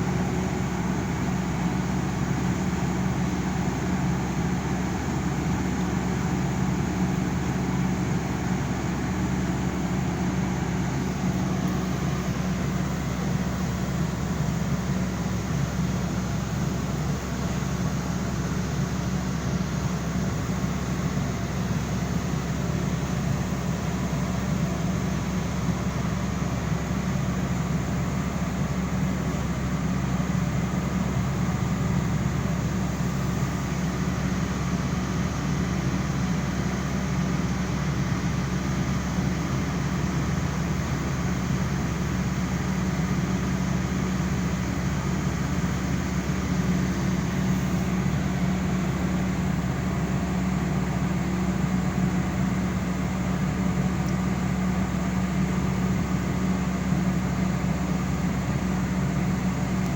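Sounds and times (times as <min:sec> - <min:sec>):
low mechanical drone: 0:31.2 - 0:55.2.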